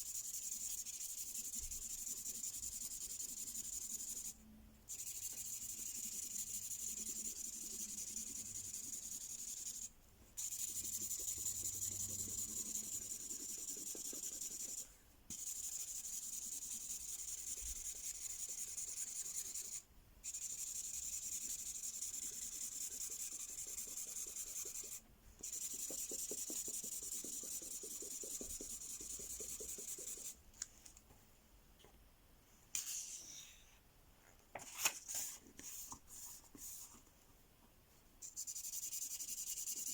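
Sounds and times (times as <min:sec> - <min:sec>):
pen scribbling on paper: 0:00.0 - 0:04.3, 0:04.9 - 0:30.4, 0:38.3 - 0:39.9.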